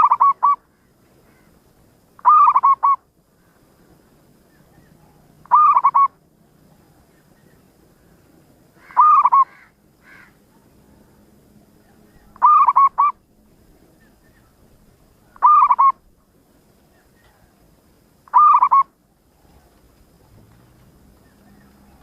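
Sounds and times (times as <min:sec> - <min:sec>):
dove cooing: 0:00.0 - 0:00.7, 0:02.2 - 0:03.0, 0:04.6 - 0:06.2, 0:08.8 - 0:09.7, 0:11.8 - 0:13.2, 0:15.2 - 0:16.1, 0:18.3 - 0:22.0.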